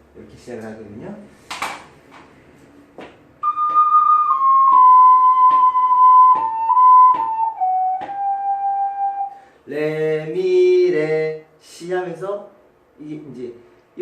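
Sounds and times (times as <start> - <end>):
ocarina playing held notes: 3.4 - 9.4.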